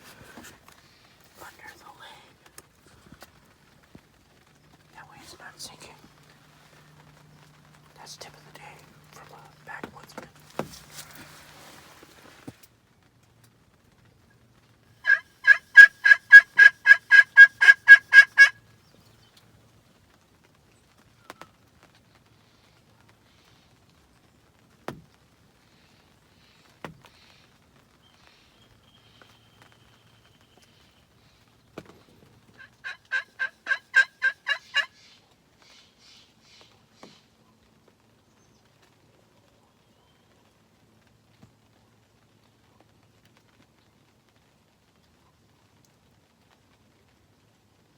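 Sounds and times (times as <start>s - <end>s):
turkey yelps: 15.0s - 18.6s, 32.6s - 35.2s.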